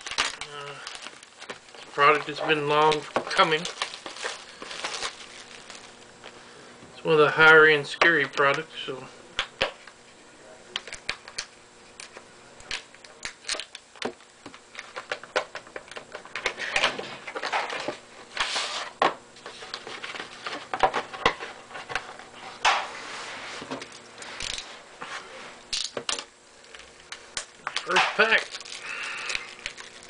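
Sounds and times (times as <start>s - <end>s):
packaging rustling and tearing: 0.0s - 6.1s, 26.6s - 30.0s.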